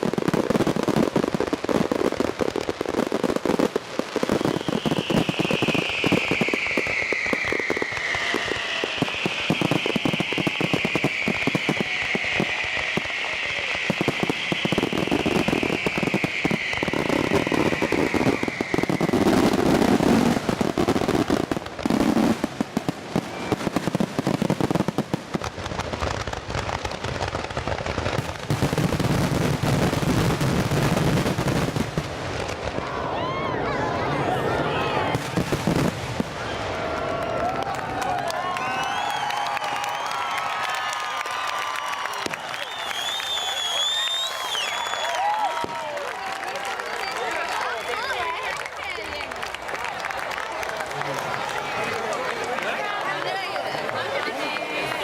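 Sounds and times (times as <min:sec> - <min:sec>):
fireworks crackling and banging: 0:00.0 - 0:55.0
fireworks whistles falling in pitch: 0:04.2 - 0:22.3, 0:38.4 - 0:45.9.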